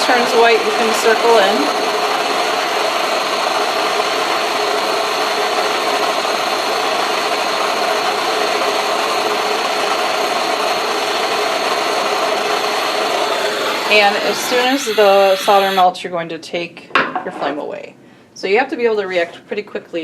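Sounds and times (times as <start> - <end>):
torch flame hissing: 8.1 - 15.8.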